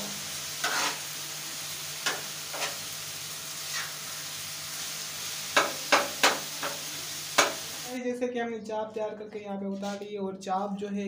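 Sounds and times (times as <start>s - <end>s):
food sizzling in a pan: 0.0s - 8.0s
metal spatula scraping a pan: 0.6s - 1.1s, 2.1s - 2.8s.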